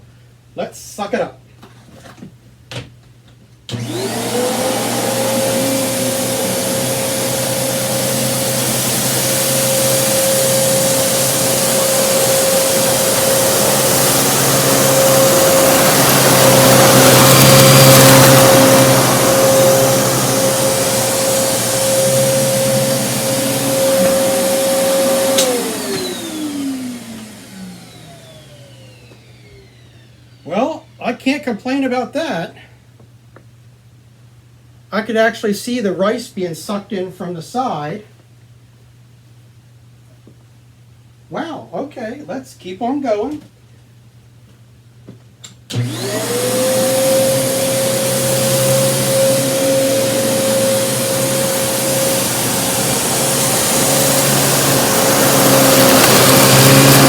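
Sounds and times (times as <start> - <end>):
vacuum cleaner motor whine: 3.7 - 31.0, 45.7 - 57.0
rice sucked up by vacuum: 3.8 - 28.5, 45.8 - 57.0.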